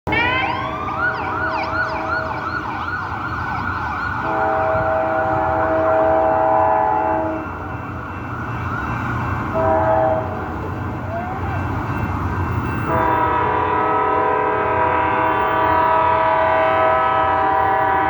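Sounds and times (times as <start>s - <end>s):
siren yelping: 0.1s - 14.1s
low rumble of train: 0.1s - 18.0s
locomotive air horn blast: 4.2s - 7.5s, 9.5s - 10.5s, 12.9s - 18.0s.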